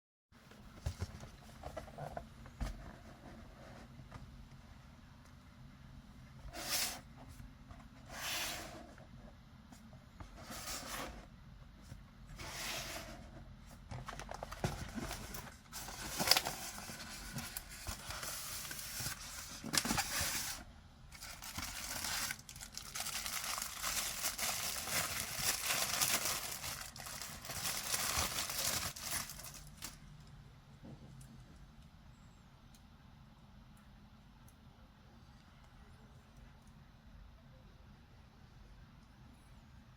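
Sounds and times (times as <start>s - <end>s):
packaging rustling and tearing: 14.0s - 30.0s.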